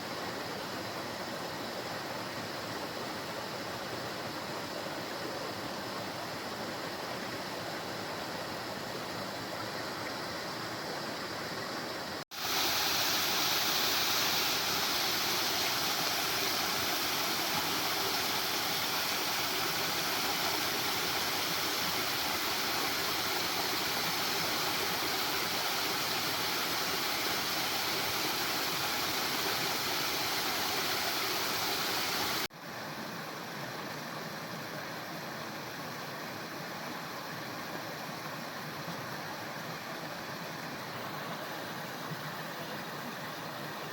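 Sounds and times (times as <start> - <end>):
waterfall rushing: 12.3 - 32.5.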